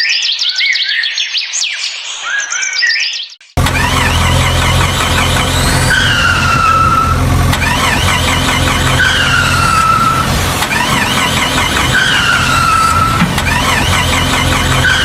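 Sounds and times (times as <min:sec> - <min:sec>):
cartoon engine hum: 0:03.6 - 0:15.0
warbling squeal and falling whine: 0:03.6 - 0:15.0.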